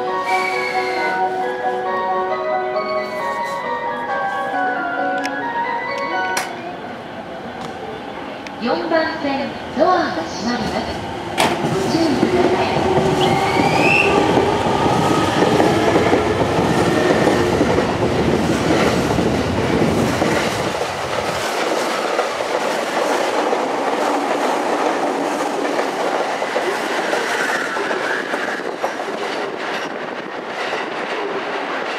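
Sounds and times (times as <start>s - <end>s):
electric train pulling out: 10.4s - 30.2s.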